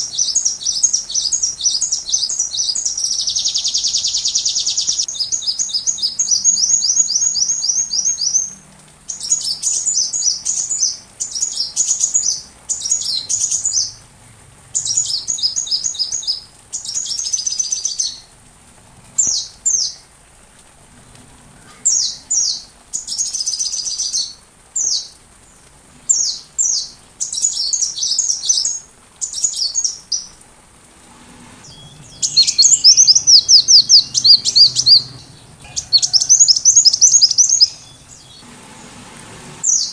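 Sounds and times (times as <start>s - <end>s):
sunbird chirping trills: 0.0s - 14.0s, 14.8s - 18.3s, 31.6s - 38.6s.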